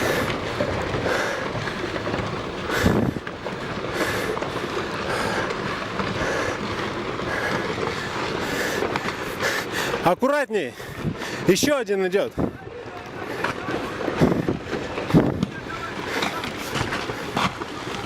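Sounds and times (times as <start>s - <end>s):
loud rock crack: 0.0s - 11.8s, 12.4s - 18.0s
rocks tumbling and clattering: 0.0s - 18.0s.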